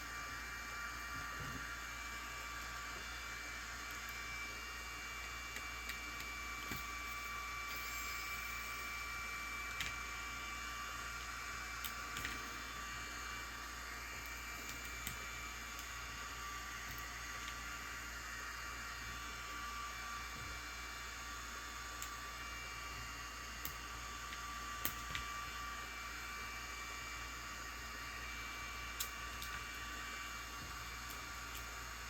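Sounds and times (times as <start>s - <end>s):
faint high whine: 0.0s - 32.0s
small tool clicks and taps: 5.5s - 6.9s.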